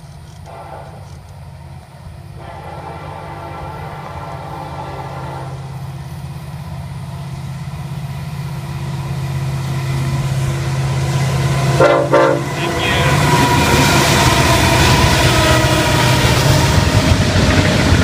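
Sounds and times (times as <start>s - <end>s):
diesel locomotive engines droning: 0.0s - 18.0s
locomotive horn toot: 0.4s - 1.1s, 2.4s - 5.8s, 11.7s - 16.8s.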